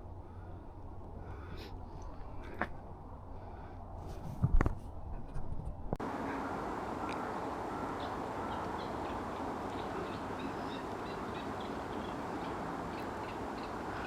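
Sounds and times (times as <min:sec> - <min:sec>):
songbirds chirping and singing: 0:06.2 - 0:14.0.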